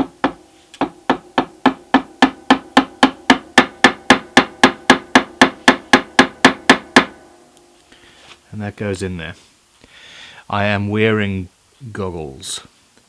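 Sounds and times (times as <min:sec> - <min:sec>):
small hammer tapping on wood: 0:00.0 - 0:07.2.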